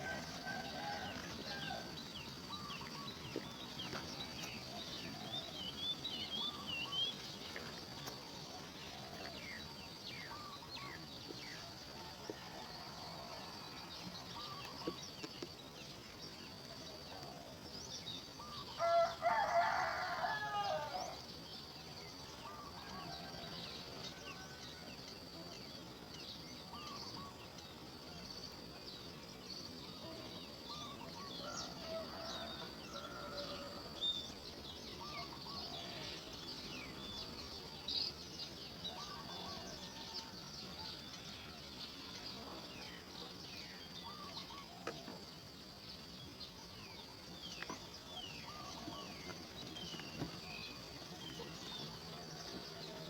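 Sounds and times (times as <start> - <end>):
rooster crowing: 0.0 - 2.0, 18.8 - 21.2, 31.4 - 34.0
small birds chirping: 0.0 - 11.7.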